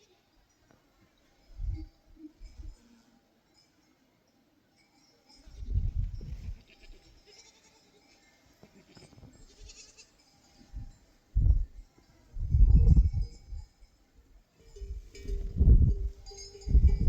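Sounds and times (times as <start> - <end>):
sheep bleating: 6.5 - 7.9, 8.7 - 10.1.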